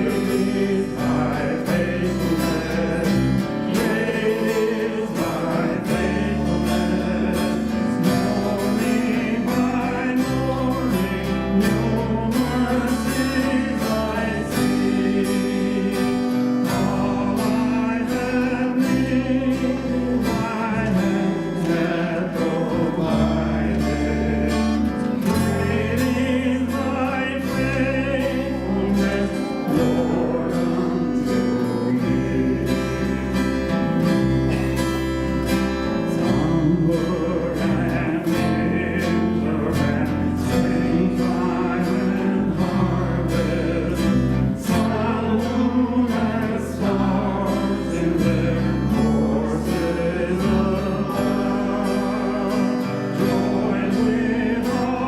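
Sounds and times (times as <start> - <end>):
person singing: 0.0 - 34.8, 35.8 - 55.0
held bass notes: 0.0 - 55.0
strummed guitar: 0.0 - 55.0.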